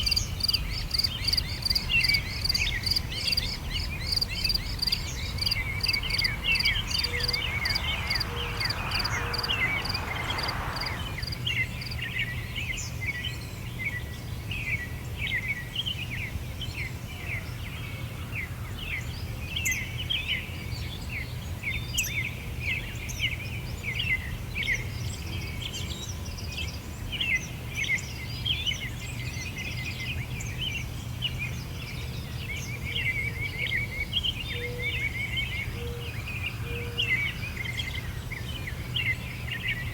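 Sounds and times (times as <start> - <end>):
small birds chirping: 0.0 - 11.9
low background rumble: 0.0 - 12.0.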